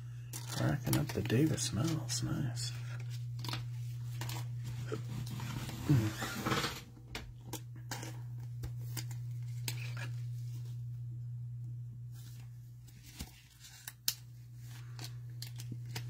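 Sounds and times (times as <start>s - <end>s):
steady low hum: 0.0s - 16.0s
cards clicking and rustling: 0.3s - 5.4s, 7.5s - 10.4s, 12.2s - 16.0s.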